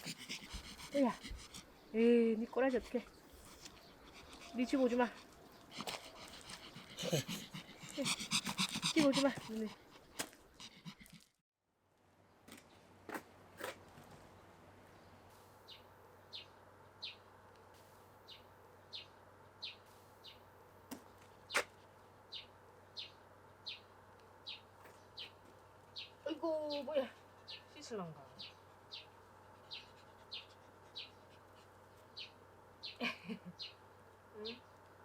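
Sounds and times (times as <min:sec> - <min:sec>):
small bird calling: 0:00.0 - 0:09.5, 0:26.0 - 0:33.8.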